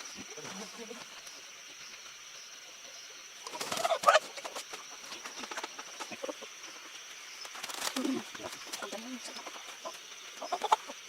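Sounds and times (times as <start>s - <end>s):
chickens clucking: 3.4s - 11.0s.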